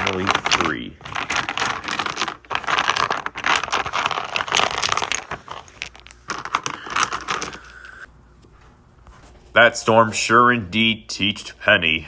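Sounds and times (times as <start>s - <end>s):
crinkling and rustling: 0.0s - 9.6s.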